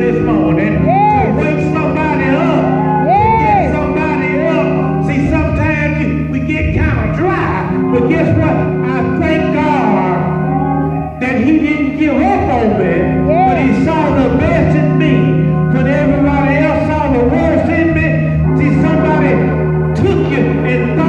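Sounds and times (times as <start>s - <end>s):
held instrumental chords: 0.0s - 21.0s
person singing: 0.2s - 5.0s, 12.2s - 14.2s.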